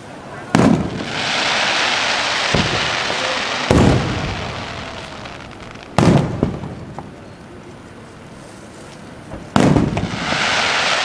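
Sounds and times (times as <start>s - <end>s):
firework shells booming: 0.5s - 7.2s, 9.4s - 11.0s
loud hiss: 0.7s - 6.6s, 9.7s - 11.0s.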